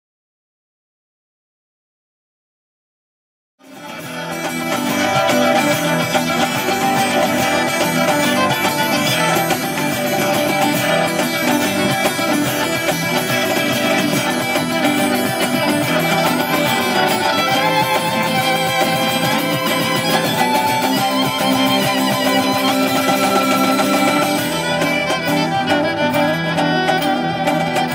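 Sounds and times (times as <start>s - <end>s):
music: 3.6s - 27.9s.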